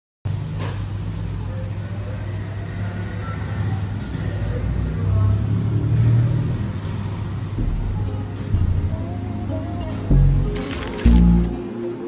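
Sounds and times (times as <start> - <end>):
motor vehicle rumbling: 2.4 - 11.6.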